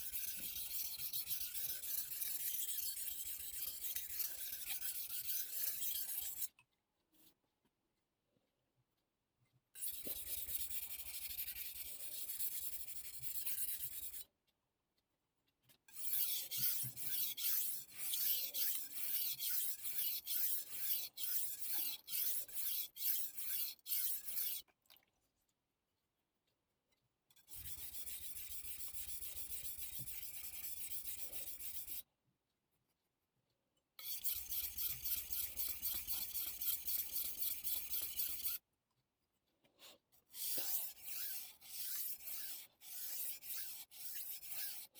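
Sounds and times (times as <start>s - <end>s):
knife scraping on whetstone: 0.0s - 6.5s, 15.9s - 24.6s, 27.5s - 32.0s, 34.0s - 38.6s, 40.3s - 44.9s.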